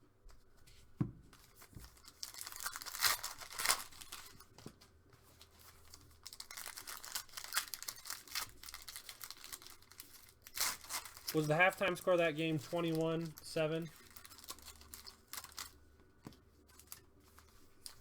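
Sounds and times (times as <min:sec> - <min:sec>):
card packaging torn and crinkled: 0:01.4 - 0:04.6, 0:05.4 - 0:15.8.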